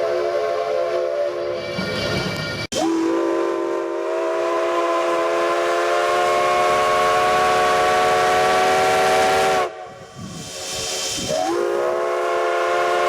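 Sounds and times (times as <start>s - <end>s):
steam locomotive whistle: 0.0s - 1.9s, 2.7s - 10.0s, 11.1s - 13.0s
faint steam hiss: 3.2s - 13.0s.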